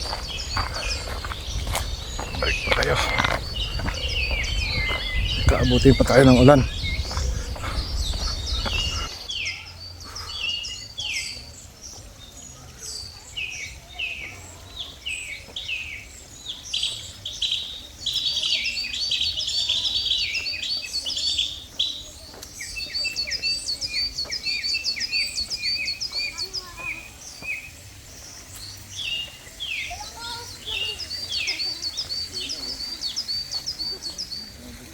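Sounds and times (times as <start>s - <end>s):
low rumble: 0.0s - 9.2s
wild birds singing and calling: 0.0s - 34.9s.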